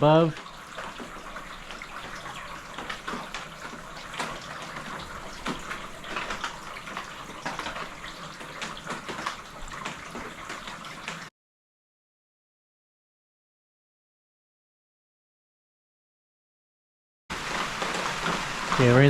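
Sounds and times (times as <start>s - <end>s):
rainwater dripping into gutters: 0.0s - 11.3s, 17.3s - 19.0s.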